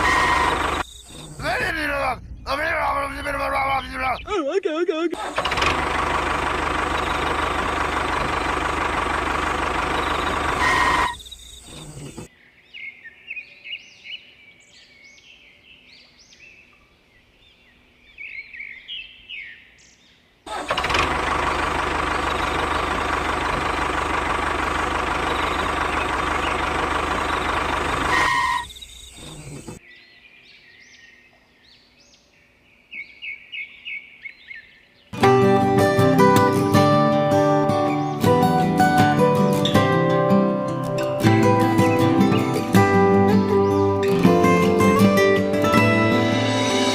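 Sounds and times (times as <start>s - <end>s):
small motor droning: 0.0s - 1.5s, 5.2s - 12.3s, 20.5s - 29.8s
birds chirping quietly: 0.0s - 5.2s, 5.9s - 20.4s, 21.2s - 35.2s.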